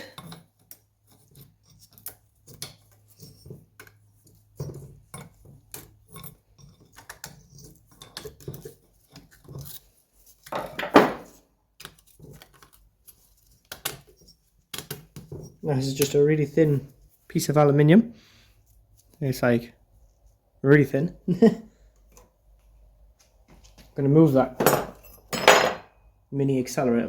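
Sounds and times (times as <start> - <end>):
metal parts clicking and clinking: 0.0 - 9.8.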